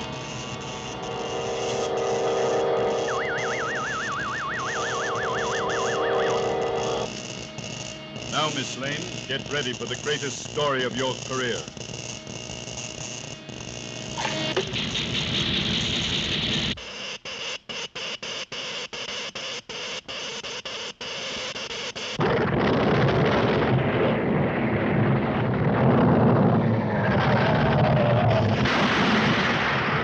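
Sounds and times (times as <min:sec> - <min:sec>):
volcano rumble: 0:22.2 - 0:30.0.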